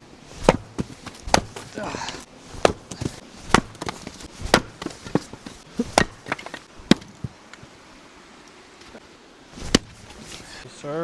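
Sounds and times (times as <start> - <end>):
wood being chopped: 0.4 - 7.4, 9.6 - 10.5.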